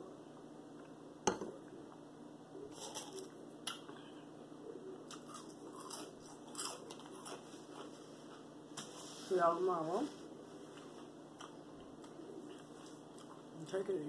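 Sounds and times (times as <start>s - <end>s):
chewing french fries: 2.6s - 4.0s, 5.0s - 8.5s, 10.7s - 13.7s.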